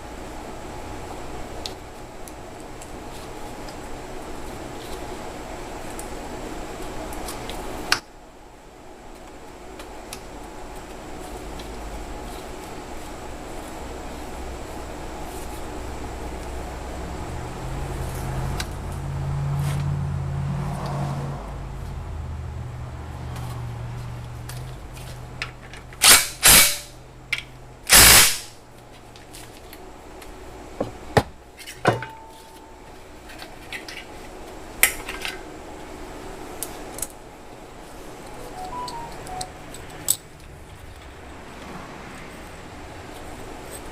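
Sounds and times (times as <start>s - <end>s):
low steady hum: 0.0s - 26.0s, 28.6s - 41.5s
power tool bursts: 27.9s - 28.5s.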